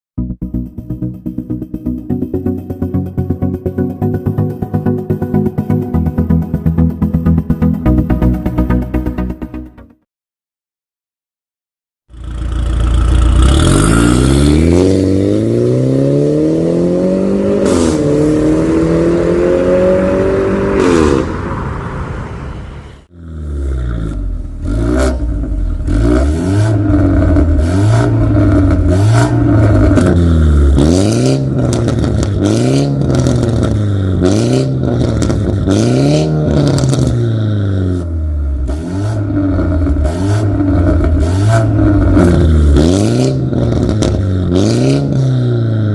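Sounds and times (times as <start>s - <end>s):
car engine revving: 12.1s - 45.9s.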